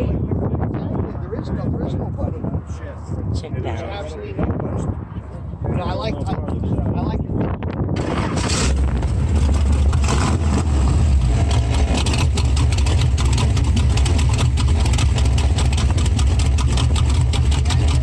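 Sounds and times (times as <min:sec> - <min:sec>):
car engine idling: 0:08.0 - 0:18.0.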